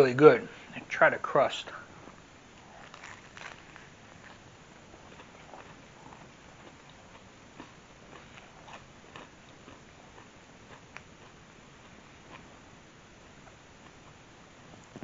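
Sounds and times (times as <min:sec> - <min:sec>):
person chewing crunchy crust: 0:02.5 - 0:12.6.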